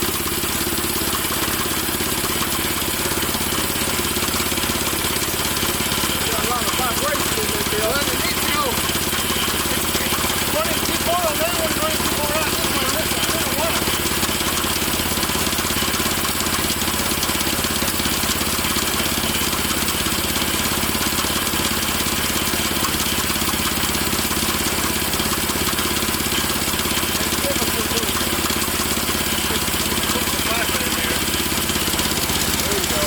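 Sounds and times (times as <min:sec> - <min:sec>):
small gas engine running: 0:00.0 - 0:33.0.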